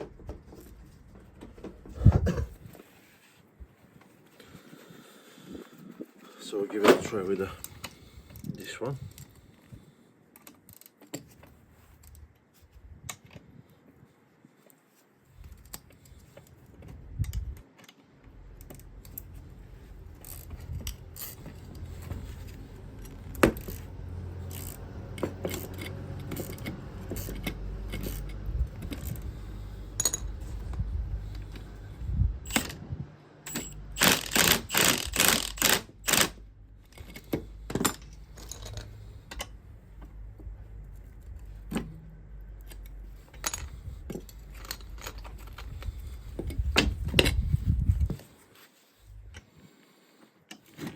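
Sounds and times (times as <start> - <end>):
metal tools clinking and scraping: 20.2 - 31.8, 33.5 - 39.6, 42.6 - 47.5
sharp metallic clicks: 33.4 - 37.3.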